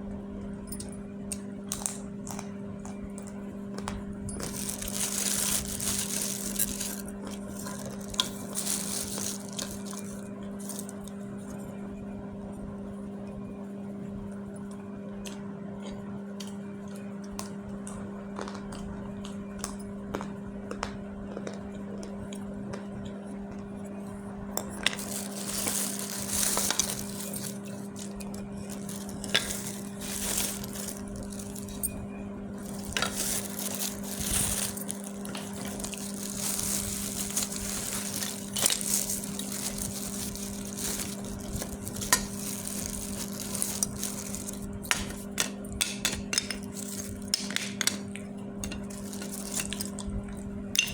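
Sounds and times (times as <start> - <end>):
dried clay crunching: 4.4 - 11.1, 24.8 - 32.0, 32.6 - 45.5.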